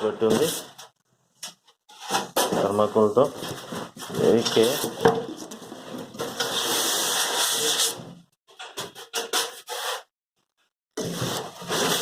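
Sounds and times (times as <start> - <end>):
packing material scraping: 11.0 - 12.0.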